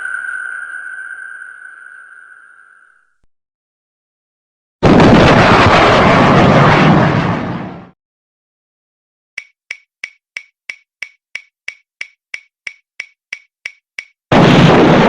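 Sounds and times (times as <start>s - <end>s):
loud blast of noise: 4.8s - 7.9s, 14.3s - 15.0s
synthesized pitched ticks: 9.4s - 14.2s.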